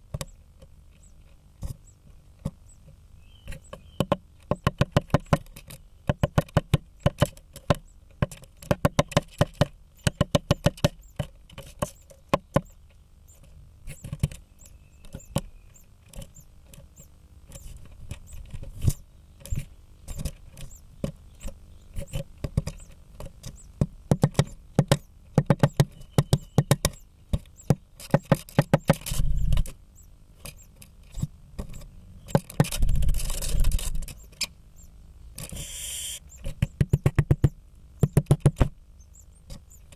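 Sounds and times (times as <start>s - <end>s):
woodpecker knocking on wood: 3.4s - 12.8s, 13.4s - 29.8s, 30.4s - 34.3s, 36.4s - 38.8s
rustling and scraping: 11.2s - 12.3s, 16.0s - 23.6s, 30.4s - 34.5s.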